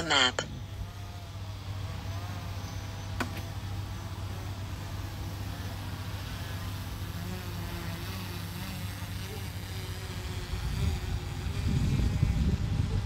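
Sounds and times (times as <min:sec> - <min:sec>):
drone propellers humming: 0:00.0 - 0:13.0.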